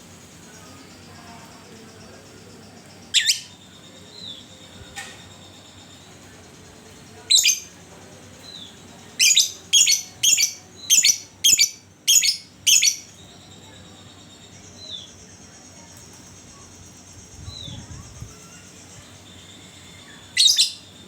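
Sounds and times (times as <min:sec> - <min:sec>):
lovebird calling: 0:03.0 - 0:03.6, 0:07.3 - 0:07.7, 0:09.2 - 0:13.1.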